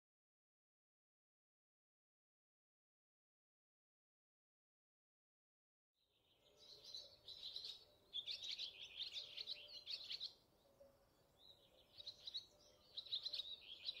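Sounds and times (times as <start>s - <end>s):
small birds chirping: 6.1s - 14.0s.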